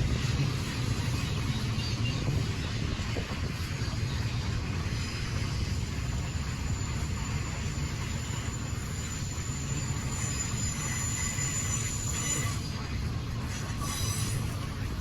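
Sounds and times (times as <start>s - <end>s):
freight train rumbling: 0.0s - 15.0s
steel wheels squealing: 4.9s - 15.0s.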